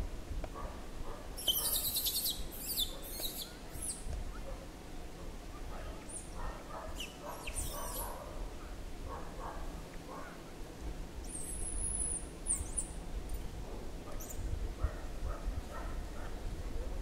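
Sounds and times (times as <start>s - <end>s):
small birds chirping and twittering: 1.4s - 4.4s, 6.0s - 8.2s, 11.2s - 14.5s.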